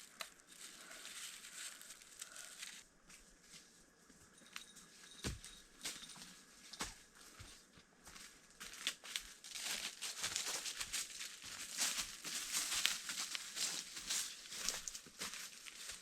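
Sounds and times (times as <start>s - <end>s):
dry rustling and crinkling: 0.0s - 3.7s, 8.5s - 16.0s.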